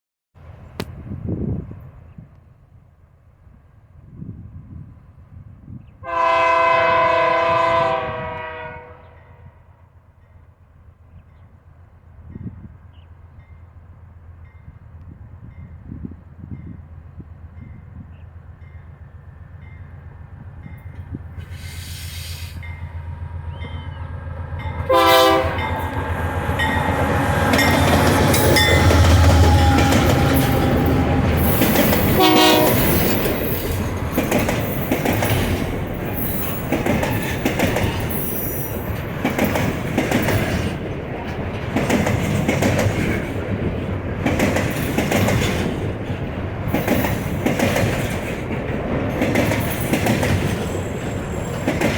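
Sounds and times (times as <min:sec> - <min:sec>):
short horn blasts: 0:06.0 - 0:09.2, 0:24.9 - 0:25.8, 0:32.1 - 0:33.2
locomotive engine rumble: 0:12.8 - 0:51.9
clickety-clack of train wheels: 0:24.6 - 0:51.9.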